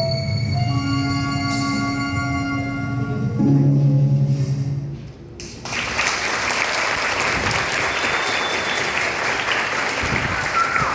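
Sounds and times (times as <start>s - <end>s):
audience applause: 5.6s - 10.9s.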